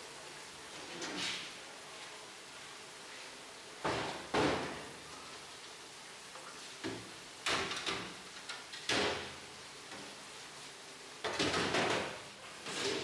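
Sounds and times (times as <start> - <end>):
kitchenware knocks and clatters: 11.2 - 13.0.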